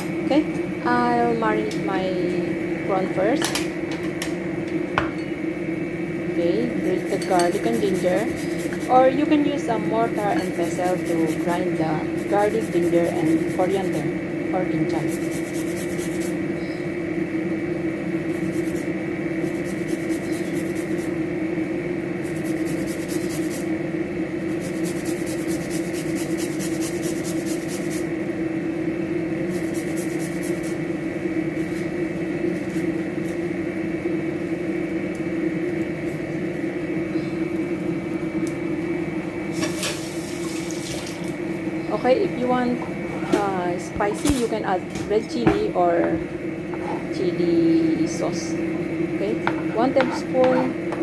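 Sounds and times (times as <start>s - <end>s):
steady hum: 0.0s - 51.0s
grater scraping: 6.8s - 9.0s, 10.2s - 14.0s, 15.0s - 16.4s, 22.2s - 23.6s, 24.6s - 28.0s, 29.5s - 30.8s.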